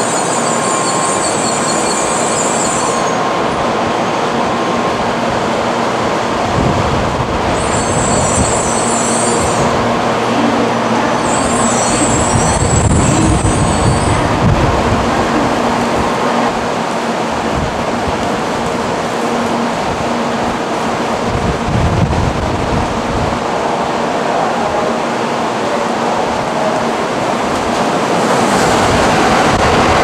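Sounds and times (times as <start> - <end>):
train wheels rushing on rail: 0.0 - 30.0.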